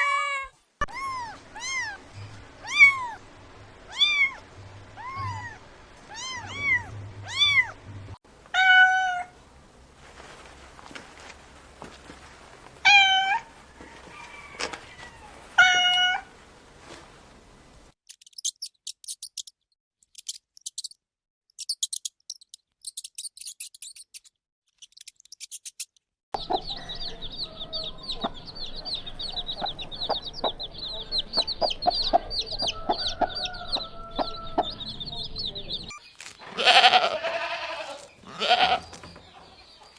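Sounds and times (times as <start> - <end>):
kitten meowing: 0.0 - 2.0, 2.6 - 3.2, 3.9 - 4.4, 5.0 - 7.8, 36.6 - 38.8
rapid high chirps: 18.2 - 24.1
low clucking: 26.4 - 34.8.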